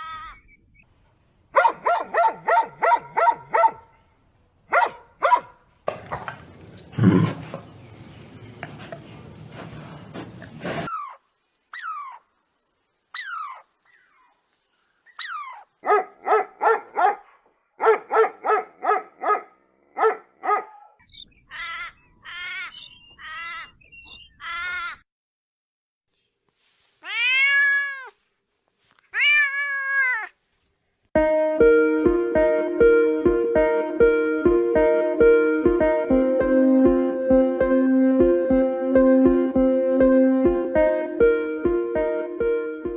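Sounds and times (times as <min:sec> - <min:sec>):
cats meowing: 0:27.0 - 0:28.2, 0:29.1 - 0:30.4.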